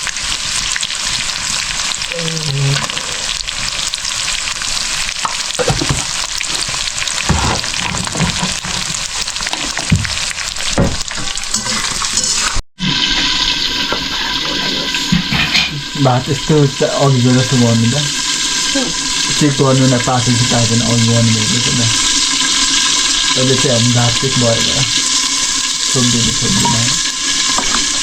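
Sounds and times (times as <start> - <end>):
meat sizzling in oil: 0.0 - 28.0
stirring knocks on pan: 5.2 - 11.4.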